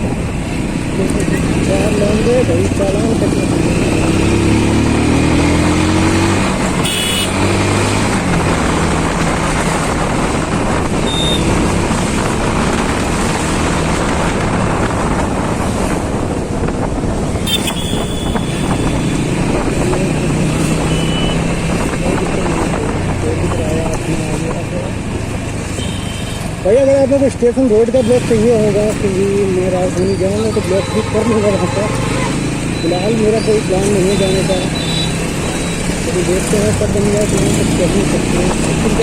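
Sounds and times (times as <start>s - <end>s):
wind and road noise: 0.0s - 39.0s
short high beeps: 11.0s - 11.5s, 17.5s - 19.0s.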